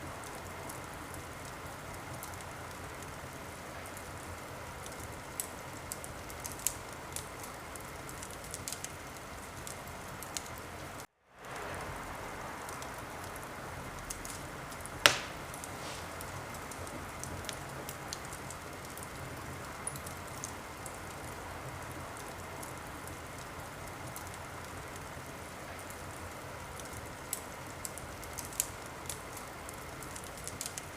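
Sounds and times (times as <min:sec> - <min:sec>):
wood fire crackling: 0:00.0 - 0:30.9
loud sharp fire pop: 0:15.0 - 0:16.2.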